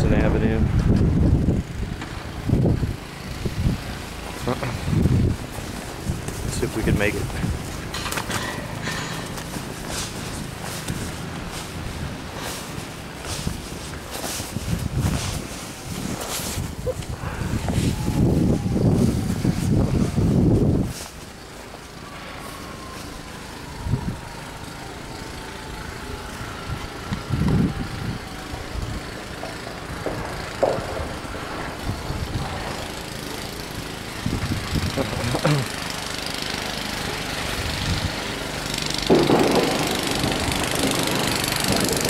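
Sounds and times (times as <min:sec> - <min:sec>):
engine running steadily: 0:00.0 - 0:42.0.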